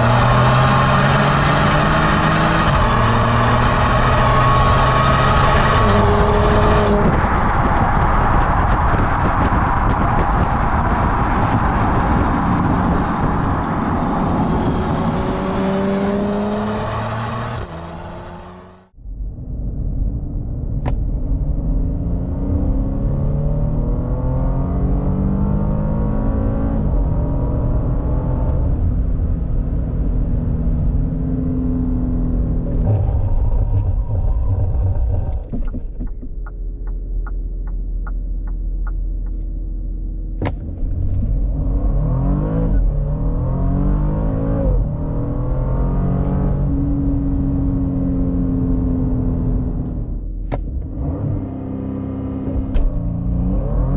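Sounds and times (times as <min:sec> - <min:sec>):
car engine accelerating: 0:00.0 - 0:19.0, 0:20.7 - 0:53.9
engine humming: 0:29.8 - 0:53.9
regular ticking: 0:35.4 - 0:39.5.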